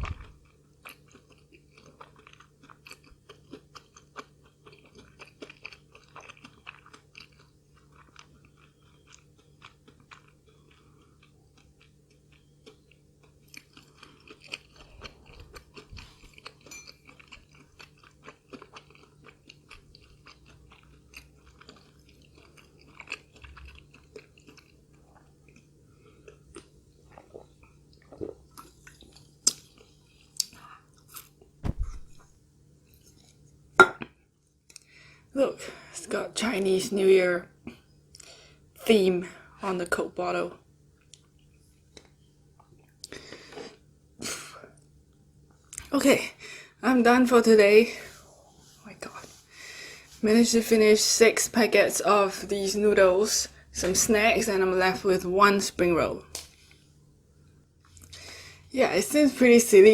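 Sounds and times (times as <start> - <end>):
chewing and crunching food: 0.0 - 36.1, 36.8 - 44.0, 54.7 - 59.9
wet mouth sounds: 30.4 - 32.3
thump: 31.6 - 32.2.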